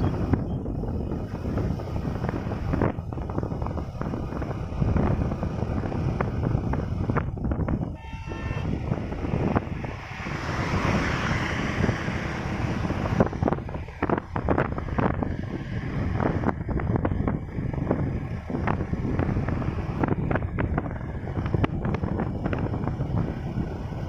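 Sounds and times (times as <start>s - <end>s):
motorcycle engine rumble: 0.0s - 24.0s
rush of noise: 0.0s - 24.0s
wind buffeting microphone: 0.0s - 24.0s
vehicle horn: 7.8s - 9.0s.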